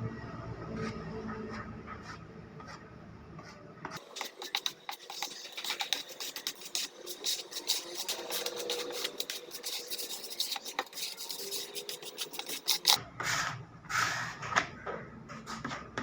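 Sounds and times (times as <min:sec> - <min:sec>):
scratching and rubbing: 0:03.4 - 0:14.6.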